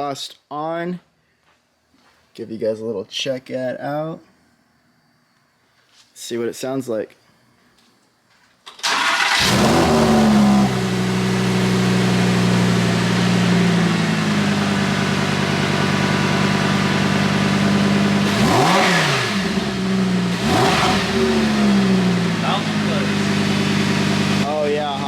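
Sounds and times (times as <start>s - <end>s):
engine throttle blips: 8.8s - 25.0s
sports car engine idling: 9.4s - 18.6s, 19.3s - 25.0s.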